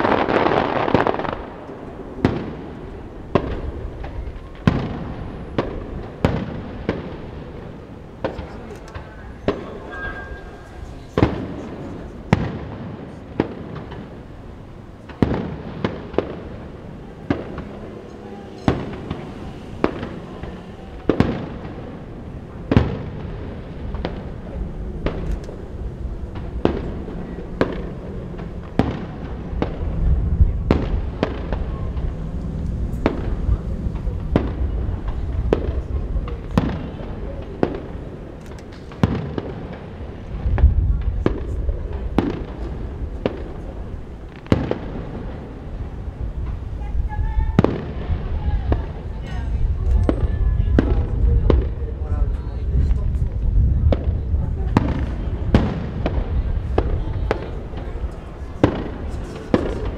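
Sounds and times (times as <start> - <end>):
fireworks bursting: 0.0 - 59.9
wind on the microphone: 23.6 - 38.4, 40.0 - 44.4, 45.1 - 59.9.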